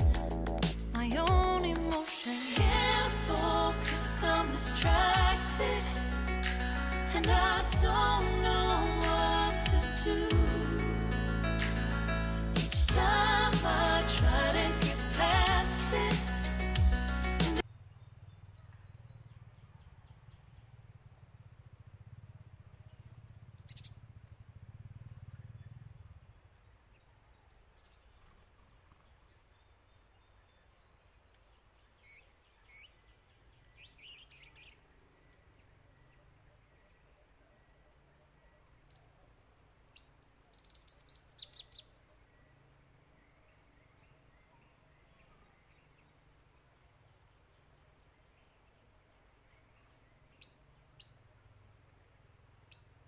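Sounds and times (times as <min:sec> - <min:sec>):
insects droning: 0:00.0 - 0:53.0.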